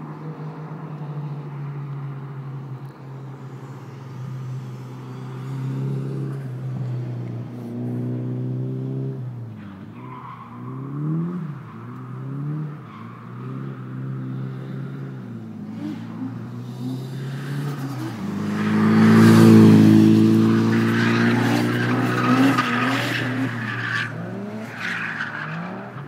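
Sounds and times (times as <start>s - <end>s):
faint tyre squeal: 3.1s - 7.1s, 9.5s - 26.0s
car engine revving: 3.3s - 26.0s.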